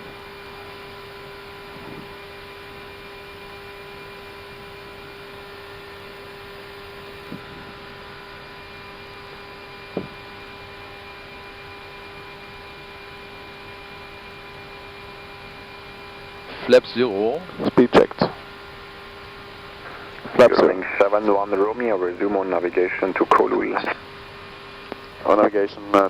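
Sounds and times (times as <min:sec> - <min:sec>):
constant hum: 0:00.0 - 0:26.0
rush of airflow and ventilation: 0:17.5 - 0:25.6.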